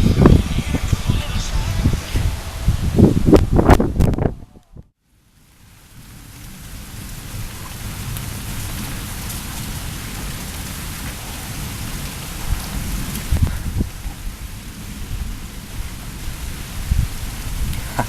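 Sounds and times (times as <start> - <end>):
thunder rumbling: 0.0 - 4.8
steady rain: 0.0 - 18.0.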